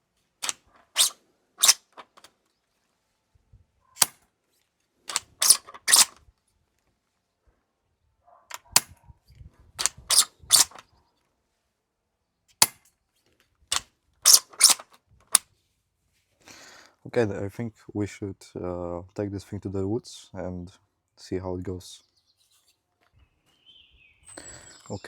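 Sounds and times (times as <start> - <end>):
airsoft rifle bolt clicks and shots: 0.4 - 2.4, 4.0 - 4.3, 5.1 - 6.2, 8.5 - 9.0, 9.8 - 10.8, 12.5 - 13.0, 13.7 - 15.5.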